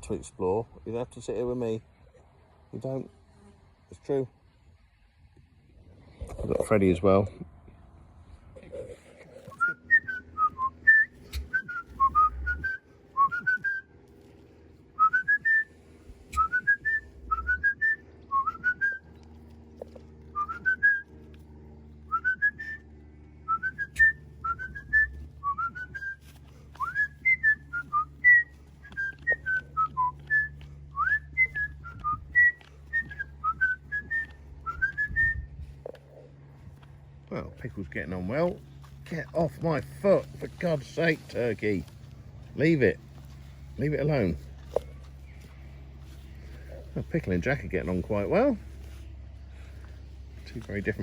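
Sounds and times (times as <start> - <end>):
person whistling: 9.6 - 13.8, 15.0 - 15.7, 16.4 - 19.0, 20.4 - 21.0, 22.1 - 22.8, 23.5 - 26.2, 26.8 - 35.5.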